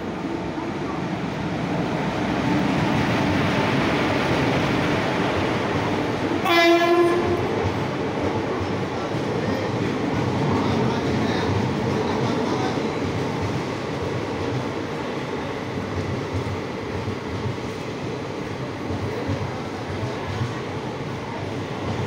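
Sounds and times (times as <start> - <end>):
train coaches rumbling past: 0.0 - 22.0
train horn blast: 6.4 - 7.5.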